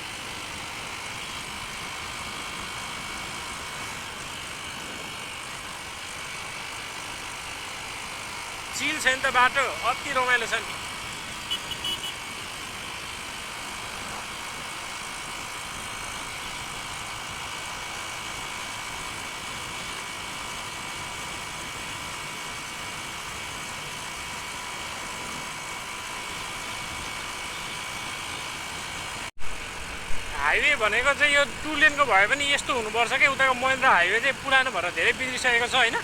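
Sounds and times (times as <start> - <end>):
motorcycle engine hum: 0.0 - 36.0
road noise: 0.0 - 36.0
wind noise: 29.4 - 30.5.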